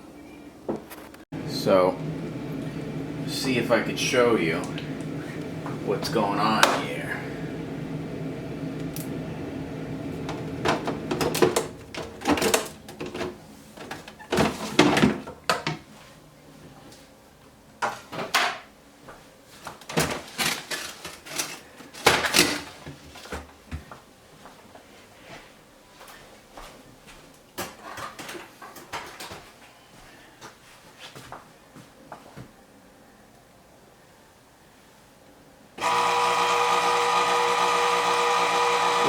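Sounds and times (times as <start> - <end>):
ice dispenser motor humming: 1.4 - 15.6, 35.8 - 39.0
knocks and clunks of parts: 10.2 - 15.8.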